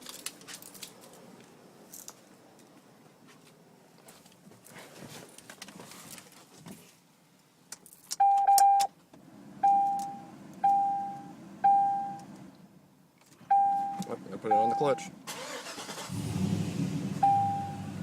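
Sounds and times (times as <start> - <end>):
car warning chime dinging: 8.2 - 8.9, 9.6 - 12.3, 13.5 - 15.2, 17.2 - 17.9
low steady hum: 8.2 - 15.3.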